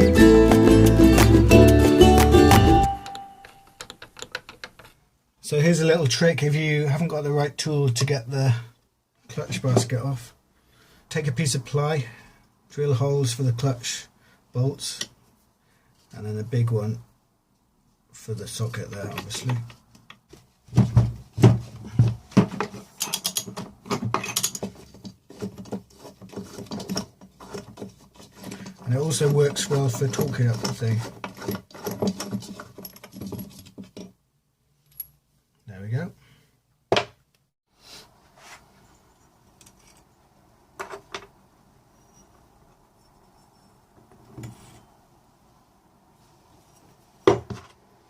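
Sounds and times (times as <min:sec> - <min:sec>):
metal parts knocking and clinking: 0:03.4 - 0:05.0, 0:23.0 - 0:27.8, 0:28.4 - 0:34.2.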